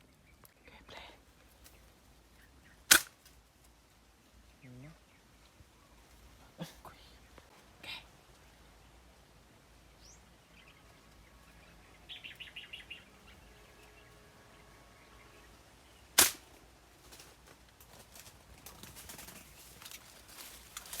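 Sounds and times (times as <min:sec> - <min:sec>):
air rifle firing: 0:02.9 - 0:03.1, 0:16.2 - 0:16.5
small bird chirping: 0:09.9 - 0:16.1.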